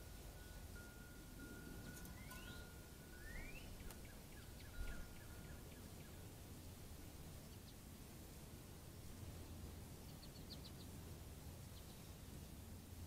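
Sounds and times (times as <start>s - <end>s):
small bird calls: 1.8s - 6.2s, 10.0s - 10.9s.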